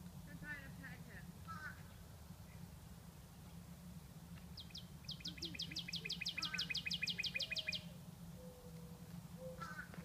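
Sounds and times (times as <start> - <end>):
songbird singing high notes: 4.6 - 7.9.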